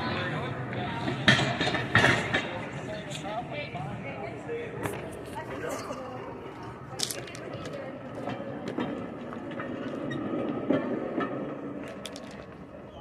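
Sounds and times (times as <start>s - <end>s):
handcar wheels rumbling on rails: 0.7s - 3.2s, 7.0s - 13.0s.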